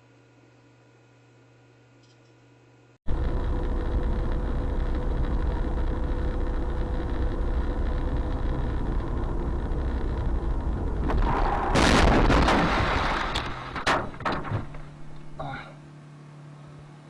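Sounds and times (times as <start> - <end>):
car engine and road rumble: 3.1 - 11.8
loud crash: 11.0 - 14.9.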